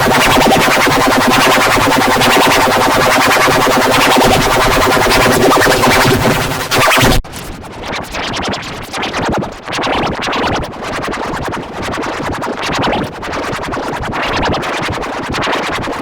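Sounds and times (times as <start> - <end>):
wavering tone: 0.0 - 7.1
distorted stuttering electronic remix: 0.0 - 7.2.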